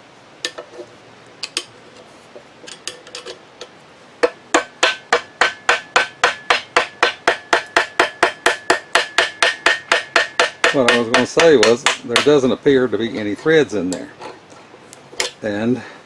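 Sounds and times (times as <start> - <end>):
clicks of metal parts: 1.4 - 2.0, 2.6 - 4.4, 15.2 - 15.4
hammer striking metal: 4.2 - 12.4.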